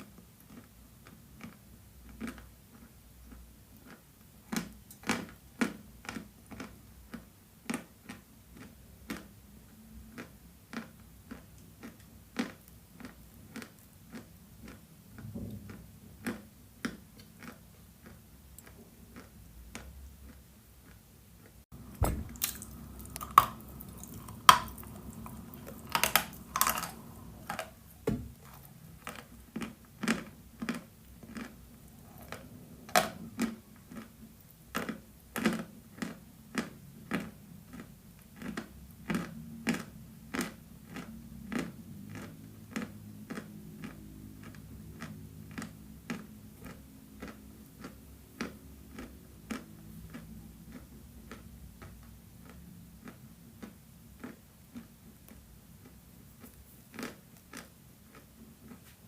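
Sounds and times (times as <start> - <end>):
chalk being crunched and chewed: 15.7 - 21.0, 22.4 - 59.0.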